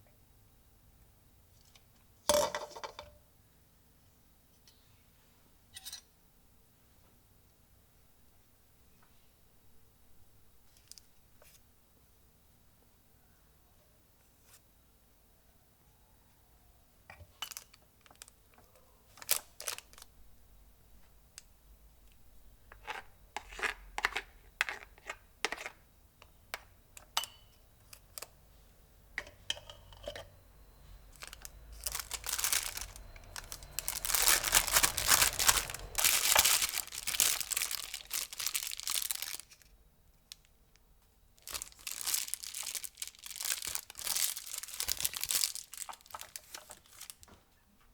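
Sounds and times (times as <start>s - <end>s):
wrapping crinkling and tearing: 19.2s - 20.1s, 31.1s - 39.7s, 41.4s - 47.3s.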